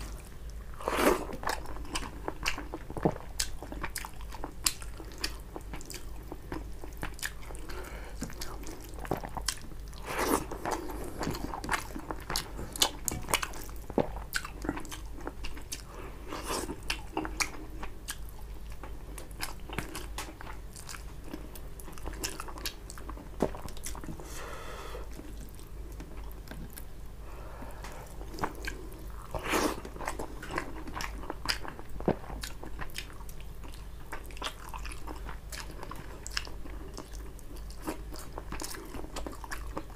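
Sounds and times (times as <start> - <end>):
wet chewing: 0.0 - 24.2, 27.8 - 39.9.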